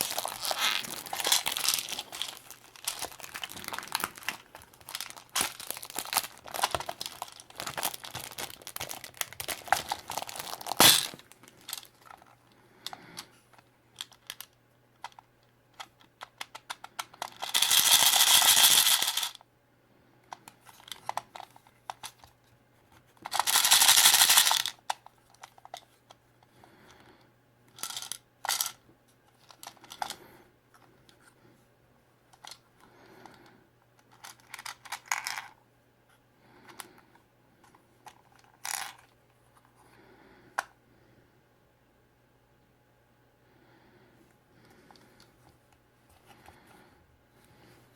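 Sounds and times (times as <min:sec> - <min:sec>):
plastic wrapper crinkling: 0:00.0 - 0:12.3, 0:17.2 - 0:19.4, 0:23.2 - 0:24.8.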